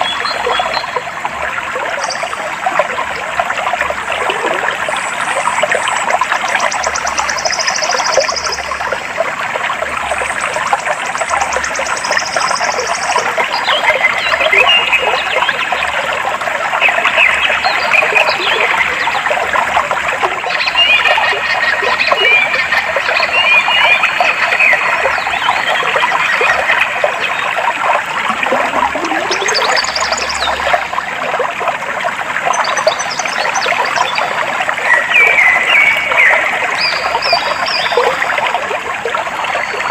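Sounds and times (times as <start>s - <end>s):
stream water flowing: 0.0s - 39.9s
birds chirping: 28.2s - 30.9s.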